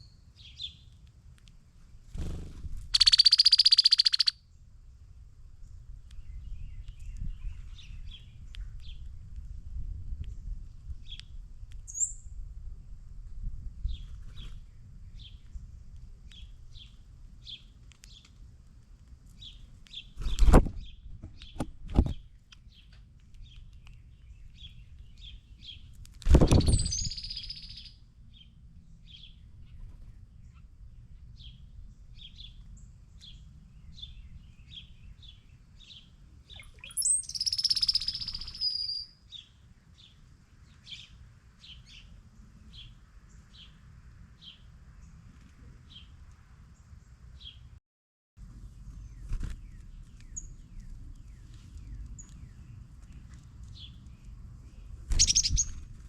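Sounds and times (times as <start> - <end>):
falling bird calls: 2.9 - 4.3, 54.8 - 55.8
bird chip notes: 3.0 - 4.3.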